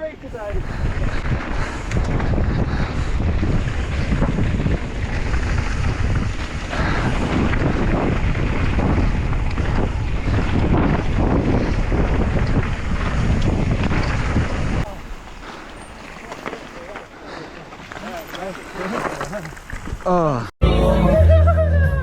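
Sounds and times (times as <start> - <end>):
wind buffeting microphone: 0.0 - 16.0, 18.6 - 20.3.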